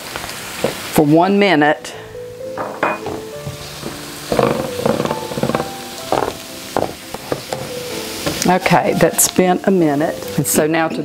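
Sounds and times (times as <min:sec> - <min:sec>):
vegetables sizzling in a skillet: 0:00.0 - 0:11.0
soft background music: 0:01.0 - 0:11.0
spoon scraping a skillet: 0:03.0 - 0:09.3.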